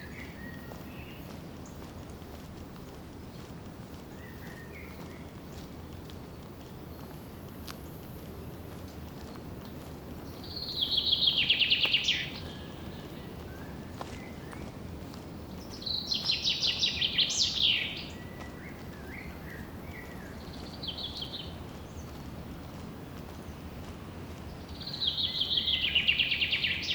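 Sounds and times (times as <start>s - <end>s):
songbird trilling: 10.4s - 13.5s, 15.7s - 22.1s, 24.6s - 26.9s.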